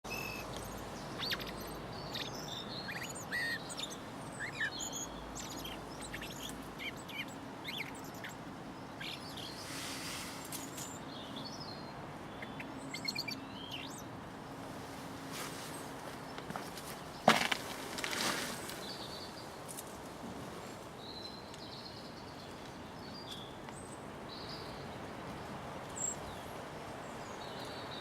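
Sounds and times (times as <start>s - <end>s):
blackbird chirping: 0.1s - 14.1s.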